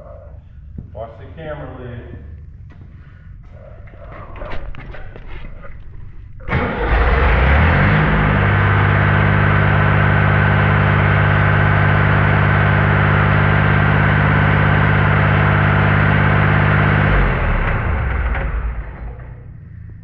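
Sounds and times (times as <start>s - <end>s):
paver engine running: 0.0s - 20.0s.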